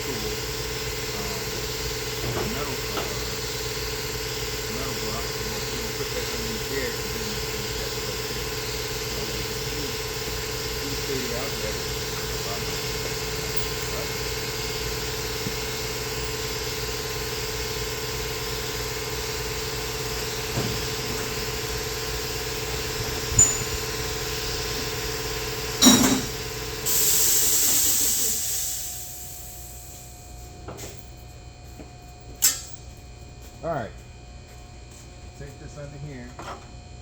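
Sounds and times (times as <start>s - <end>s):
machine humming: 0.0s - 30.5s
machine clunk: 25.8s - 26.4s
hiss of released air: 26.9s - 30.0s.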